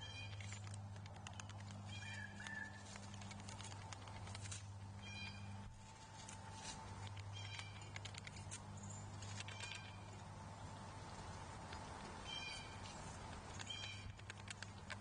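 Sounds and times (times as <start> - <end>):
faint clicks: 0.0 - 4.9, 13.0 - 15.0
low steady hum: 0.0 - 15.0
short high bird calls: 1.9 - 2.8, 5.0 - 5.6, 12.2 - 12.8.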